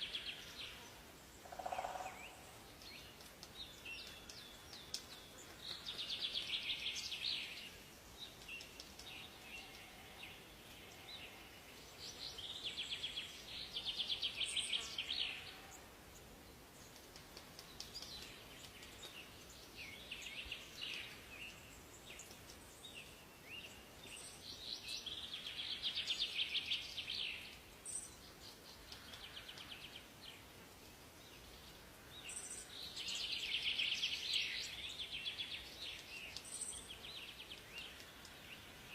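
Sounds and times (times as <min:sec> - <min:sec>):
faint background hiss: 0:00.0 - 0:38.9
soft bird chirps: 0:31.3 - 0:38.7.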